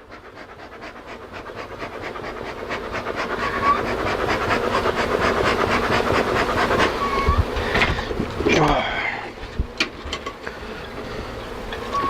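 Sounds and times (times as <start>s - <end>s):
dog panting: 0.0s - 7.4s.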